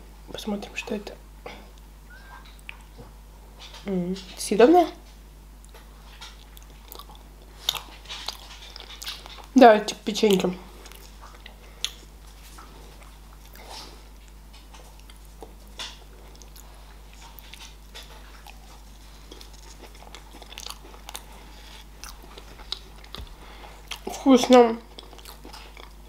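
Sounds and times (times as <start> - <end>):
person chewing crunchy pastry: 5.6 - 9.6, 10.3 - 24.2, 24.8 - 26.0.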